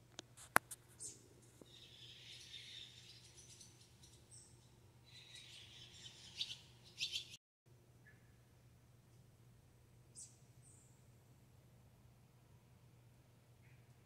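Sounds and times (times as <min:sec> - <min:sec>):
faint distant bird chirping: 0:00.9 - 0:07.4, 0:10.0 - 0:11.2, 0:13.5 - 0:14.0
low steady hum: 0:07.7 - 0:14.0.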